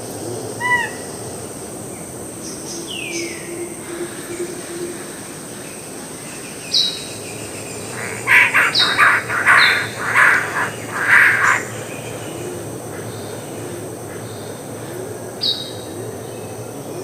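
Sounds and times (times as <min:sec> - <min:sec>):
high-pitched background whine: 0:00.0 - 0:17.0
harsh rasping bird squawks: 0:07.9 - 0:11.8.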